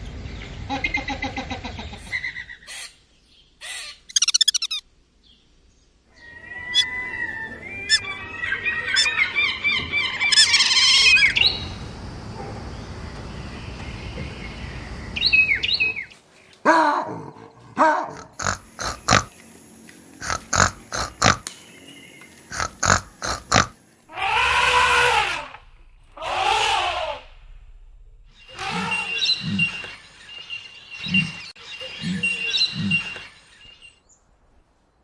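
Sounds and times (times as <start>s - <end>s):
animal chirping calls: 4.1s - 4.8s, 10.2s - 13.0s, 15.1s - 16.0s, 18.1s - 19.3s, 20.2s - 21.5s, 22.5s - 25.6s
short sharp animal calls and clicks: 4.1s - 4.8s, 18.2s - 19.3s, 20.2s - 21.5s, 22.5s - 23.7s
long pitched animal call: 18.2s - 19.3s, 20.2s - 21.5s, 22.5s - 27.3s.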